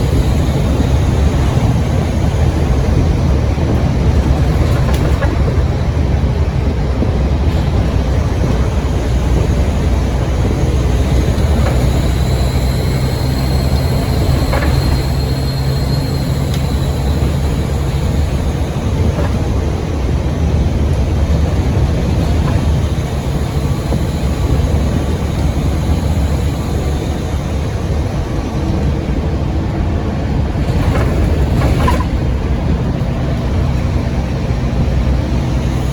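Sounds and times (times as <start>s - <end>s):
bus engine drone: 0.0s - 35.9s
high turbo whistle: 10.6s - 19.0s.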